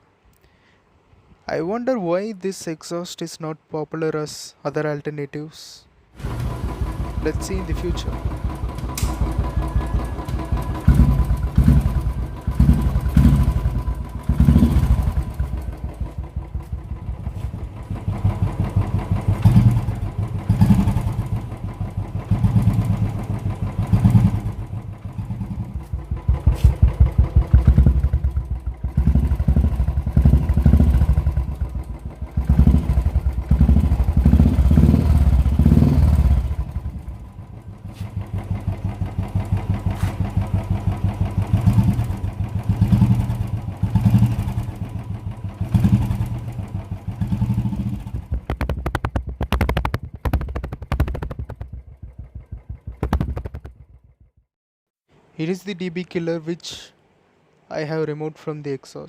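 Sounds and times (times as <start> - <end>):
motorcycle engine revving: 6.2 - 54.4.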